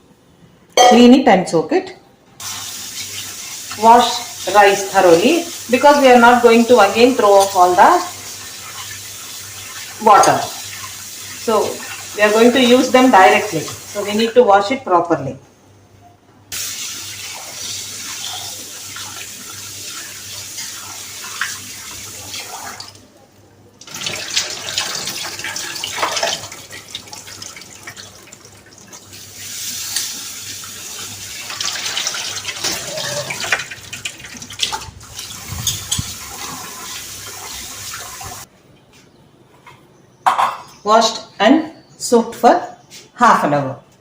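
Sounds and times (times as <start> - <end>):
rice washed by hand splashing: 2.4 - 14.1, 16.6 - 23.0, 23.8 - 38.5
tap water running into bowl: 16.6 - 23.1, 23.8 - 38.5.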